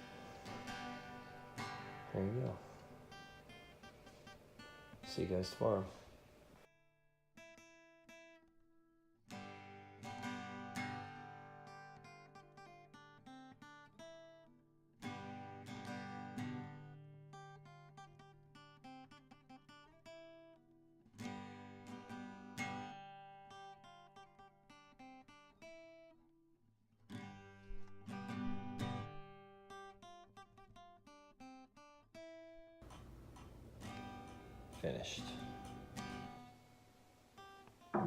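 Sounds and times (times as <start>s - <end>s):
acoustic guitar strummed chords: 0.0s - 6.0s, 9.3s - 20.3s, 27.1s - 30.8s, 32.8s - 36.8s, 37.4s - 38.0s
picked guitar notes: 0.0s - 6.0s, 32.8s - 36.8s, 37.8s - 38.0s.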